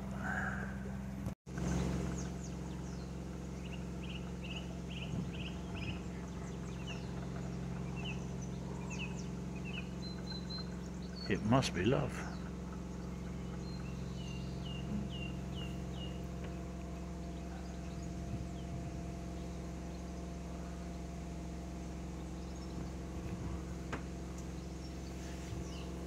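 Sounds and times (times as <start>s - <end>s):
electric motor hum and whine: 0.0s - 26.0s
bird chirping: 1.6s - 21.4s, 22.0s - 26.0s.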